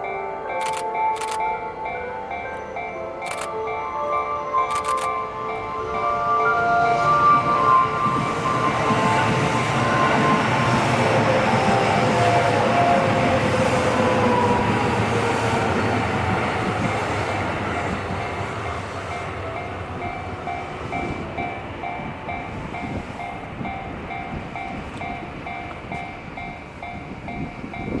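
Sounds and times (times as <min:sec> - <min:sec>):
level crossing warning bell: 0:00.0 - 0:10.4, 0:17.6 - 0:28.0
train rumbling past: 0:00.0 - 0:28.0
train whine dropping in pitch: 0:01.2 - 0:28.0.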